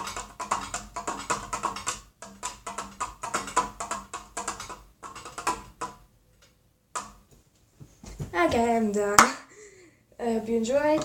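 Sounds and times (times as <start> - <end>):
taps and knocks on ceiling fan: 0.0 - 6.0.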